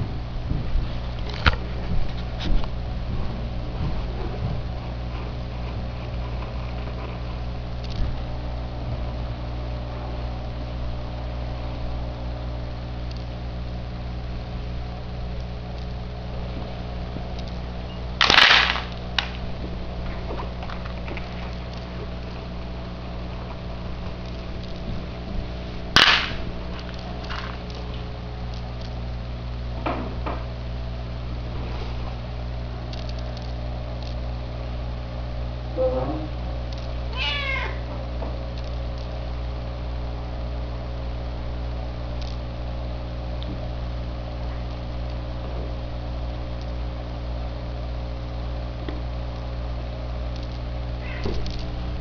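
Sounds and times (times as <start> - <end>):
steady low hum: 0.0 - 52.0
cat meowing and yowling: 37.1 - 37.8.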